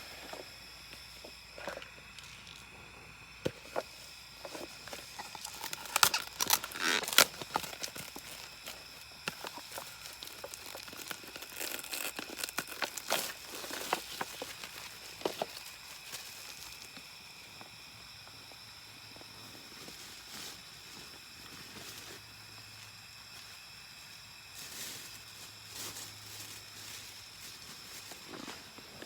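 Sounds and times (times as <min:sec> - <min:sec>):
material crinkling and rustling: 0:03.6 - 0:16.9.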